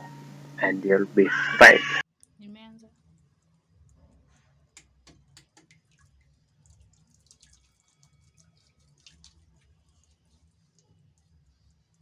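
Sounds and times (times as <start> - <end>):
low steady hum: 0.0 - 2.0
faint water drips: 6.6 - 9.4.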